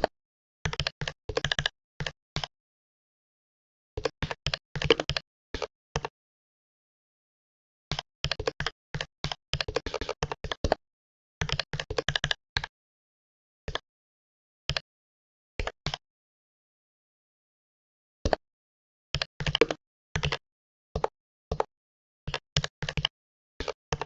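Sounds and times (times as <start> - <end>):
computer keyboard typing: 0.7 - 2.5, 22.3 - 24.0.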